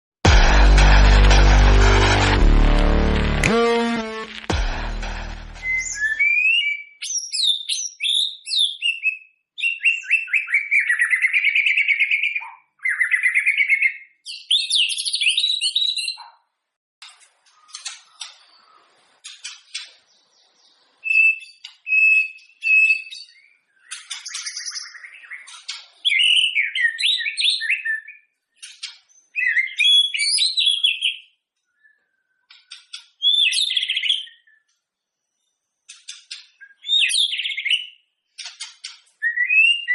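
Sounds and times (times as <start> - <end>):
songbird whistling and trilling: 5.6 - 16.3, 21.0 - 28.3, 29.0 - 34.7, 36.1 - 38.0, 39.2 - 39.9.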